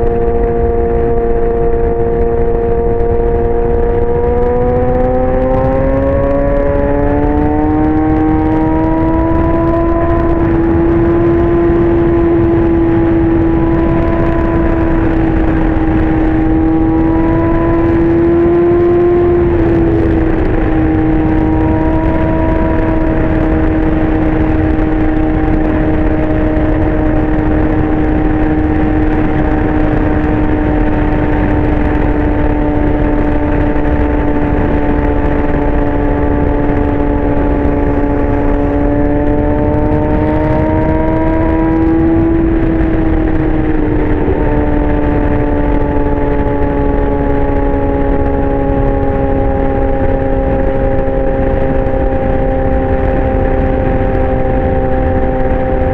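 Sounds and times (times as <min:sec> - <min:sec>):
motorcycle engine running loud: 0:00.0 - 0:55.9.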